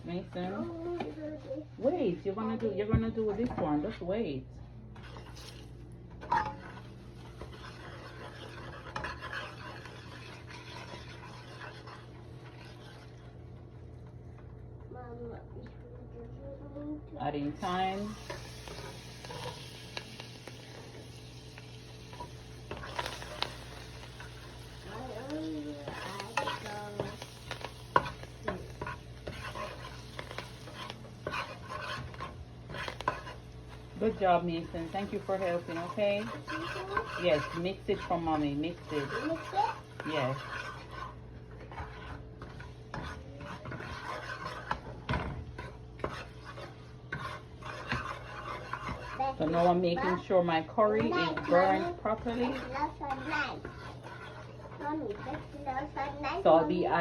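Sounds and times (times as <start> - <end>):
curry sizzling in hot oil: 5.0 - 13.4, 17.5 - 57.0
spoon scraping and knocking a pot: 6.2 - 13.0, 25.8 - 55.6.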